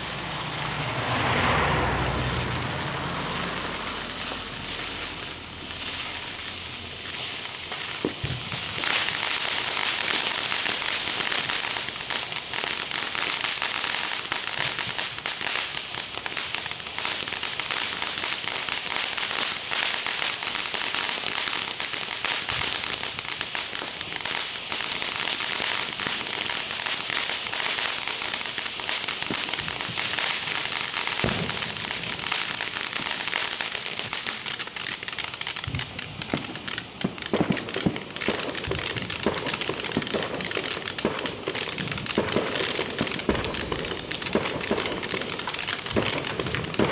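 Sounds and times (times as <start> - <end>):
fire crackling and popping: 0.0 - 46.9
loud pop: 31.2 - 32.3, 35.7 - 46.9.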